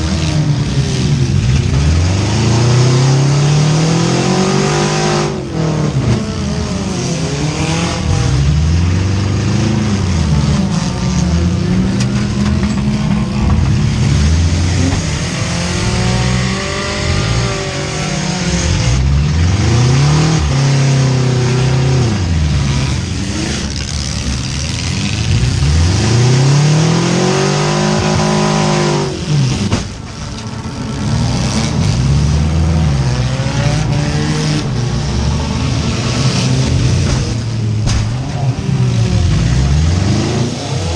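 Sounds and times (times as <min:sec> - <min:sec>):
car engines revving hard: 0:00.0 - 0:40.9.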